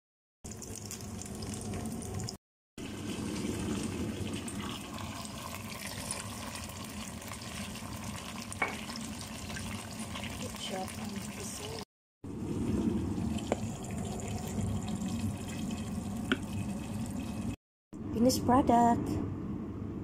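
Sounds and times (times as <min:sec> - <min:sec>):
chicken wings sizzling in pot: 0:00.5 - 0:11.9.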